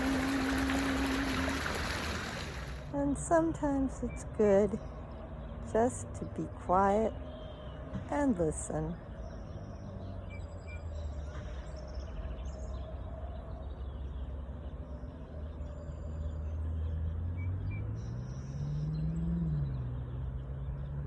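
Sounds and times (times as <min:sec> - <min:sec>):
stream water flowing: 0:00.0 - 0:03.6
traffic engine drone: 0:00.0 - 0:21.0.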